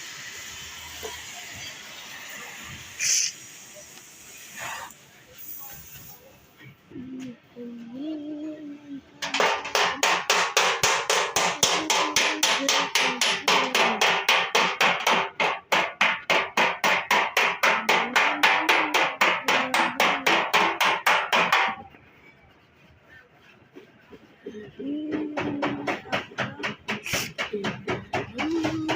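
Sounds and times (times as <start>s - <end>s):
hammer striking metal panel: 9.2s - 21.8s.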